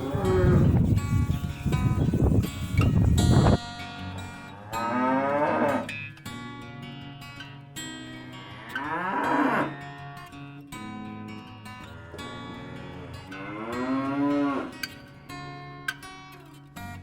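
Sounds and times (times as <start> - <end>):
cow mooing: 0.0 - 0.8, 4.1 - 6.0, 8.4 - 9.8, 11.8 - 14.9
acoustic guitar music: 0.0 - 17.0.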